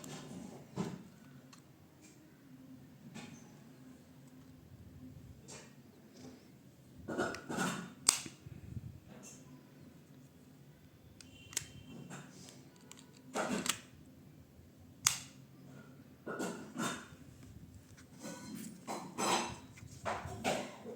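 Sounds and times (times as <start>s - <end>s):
sharp plastic snaps: 7.2s - 8.4s, 11.2s - 13.9s, 15.0s - 15.4s.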